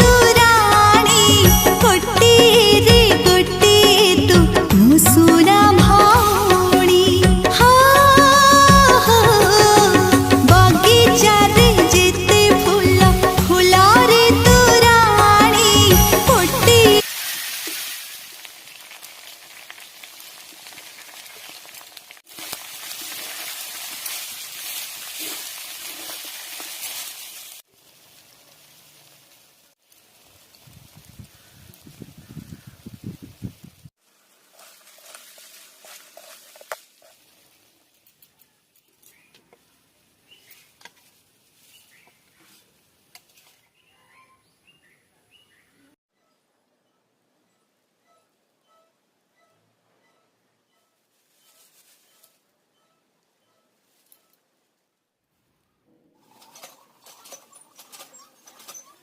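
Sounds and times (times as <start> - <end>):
food sizzling in hot oil: 17.0 - 27.7
faint bird chirps: 43.6 - 54.4.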